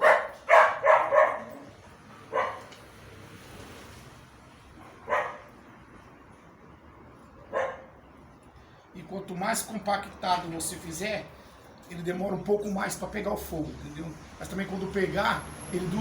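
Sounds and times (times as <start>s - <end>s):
dog barking: 0.0s - 1.7s, 2.3s - 2.7s, 5.0s - 5.5s, 7.5s - 7.9s.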